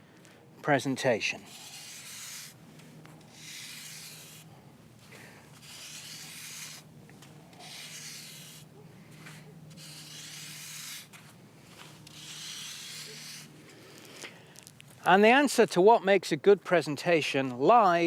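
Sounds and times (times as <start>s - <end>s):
scraping strokes in sand: 1.0s - 14.4s.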